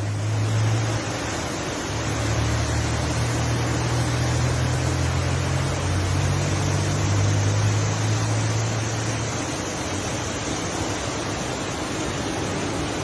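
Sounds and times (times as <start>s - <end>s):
floodwater rushing: 0.0s - 13.0s
low vehicle engine hum: 0.0s - 13.0s.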